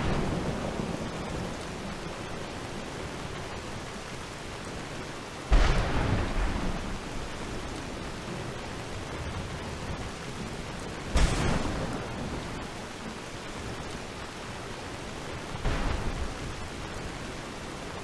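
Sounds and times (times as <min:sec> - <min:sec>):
steady rain: 0:00.0 - 0:18.0
thunder claps: 0:05.5 - 0:07.4, 0:11.1 - 0:12.7.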